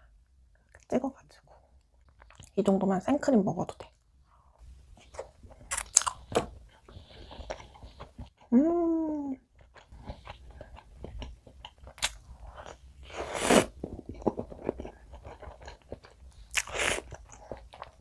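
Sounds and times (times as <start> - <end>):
wet chewing and mouth clicks: 1.7 - 2.6, 5.0 - 8.5, 9.5 - 18.0
person humming: 8.5 - 9.4.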